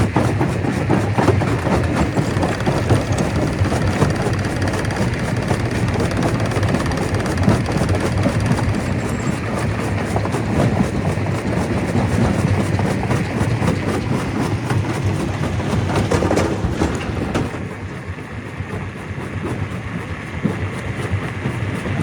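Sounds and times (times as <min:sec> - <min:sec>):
stone crusher clattering: 0:00.6 - 0:11.0.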